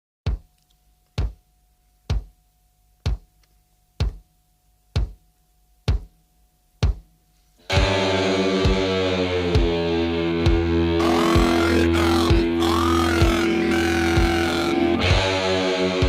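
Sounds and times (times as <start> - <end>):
kick drum beating: 0.2 - 0.5, 1.2 - 1.4, 2.0 - 2.4, 3.0 - 3.3, 4.0 - 4.3, 4.9 - 6.2, 6.8 - 7.1
loud music track: 7.7 - 16.0.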